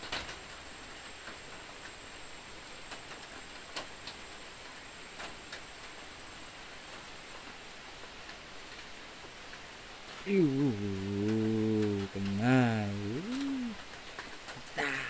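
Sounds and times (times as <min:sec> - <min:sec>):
rain falling on water and foliage: 0:00.0 - 0:15.0
raindrops ticking nearby: 0:00.0 - 0:15.0.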